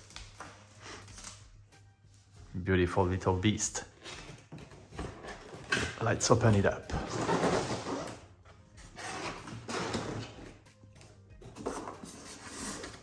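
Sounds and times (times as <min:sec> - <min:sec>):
background music: 0:00.0 - 0:13.0
cardboard box rustling and scraping: 0:06.9 - 0:10.6.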